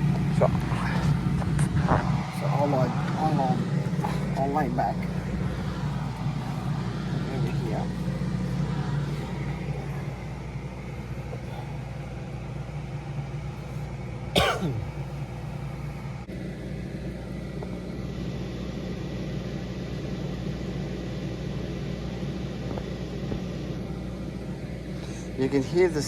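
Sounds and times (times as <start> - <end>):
small fan running: 0.0 - 26.0.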